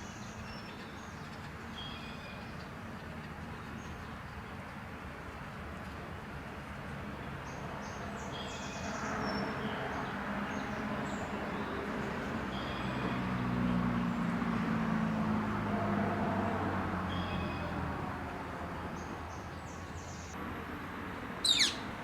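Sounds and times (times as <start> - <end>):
birds chirping: 7.5 - 14.6, 16.9 - 20.4, 21.4 - 22.0.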